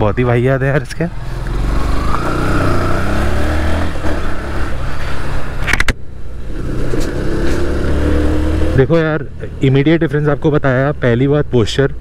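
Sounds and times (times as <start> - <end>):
motorcycle engine running: 1.1 - 4.5.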